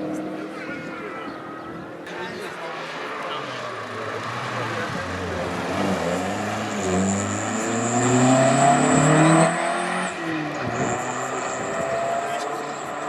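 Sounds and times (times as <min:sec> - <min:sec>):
car engine accelerating hard: 0:02.6 - 0:13.0.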